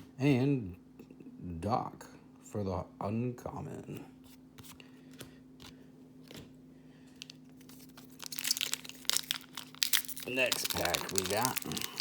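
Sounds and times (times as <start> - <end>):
foil wrapper crinkling and tearing: 7.2 - 12.0.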